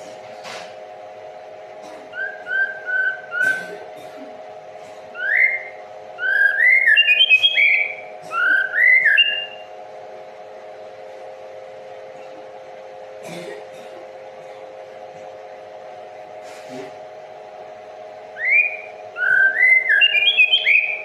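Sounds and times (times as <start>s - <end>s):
steady low hum: 0.0s - 21.0s
songbird singing whistled notes: 5.2s - 9.7s, 18.4s - 21.0s.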